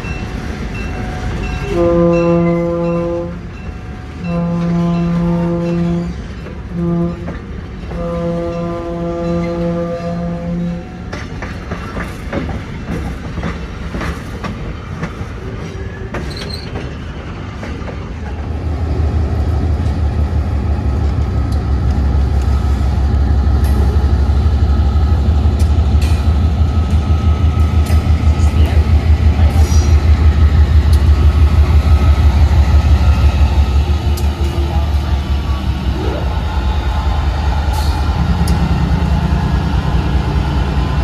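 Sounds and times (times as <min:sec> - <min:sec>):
train horn chord: 0:01.7 - 0:03.4, 0:04.2 - 0:10.9
wheel squeal: 0:15.8 - 0:16.8
diesel locomotive engine throbbing: 0:18.3 - 0:41.0.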